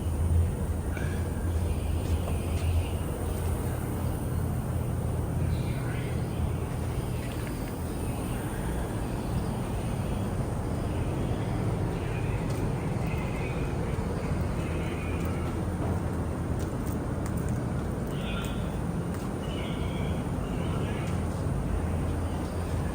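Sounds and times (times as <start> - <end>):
steady low rumble: 0.0 - 22.9.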